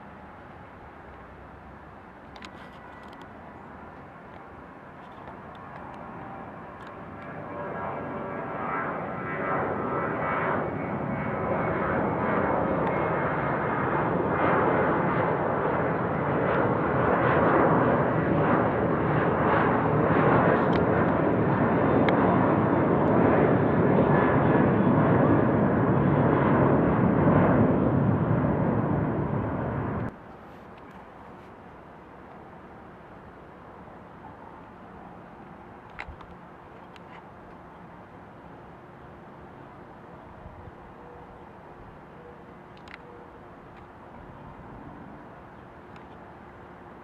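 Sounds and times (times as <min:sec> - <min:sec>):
jet engines roaring: 0:05.8 - 0:30.2.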